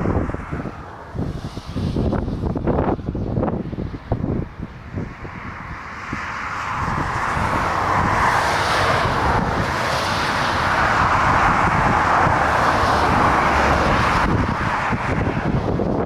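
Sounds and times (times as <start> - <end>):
jet engine rushing noise: 0.0 - 16.0
wind buffeting microphone: 0.0 - 16.0.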